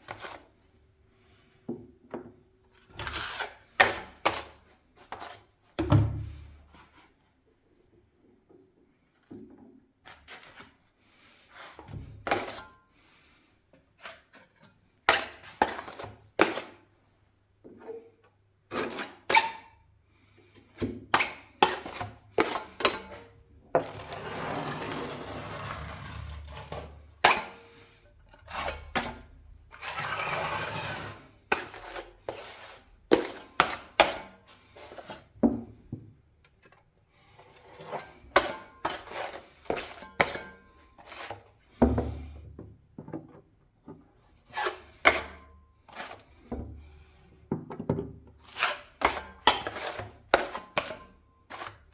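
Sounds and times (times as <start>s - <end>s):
steady scraping: 21.7s - 35.4s.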